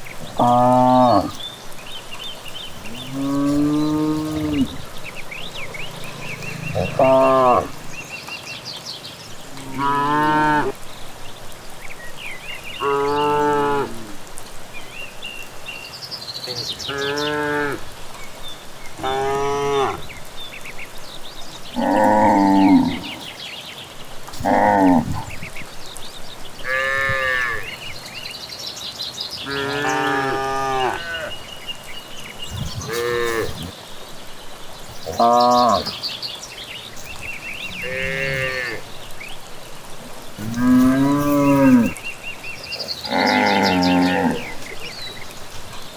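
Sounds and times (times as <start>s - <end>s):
cattle mooing: 0.3s - 1.4s, 2.8s - 4.9s, 5.5s - 8.0s, 21.8s - 23.2s, 29.5s - 31.3s, 32.6s - 33.7s, 35.0s - 36.0s, 37.7s - 38.9s, 40.4s - 42.0s, 43.0s - 44.8s.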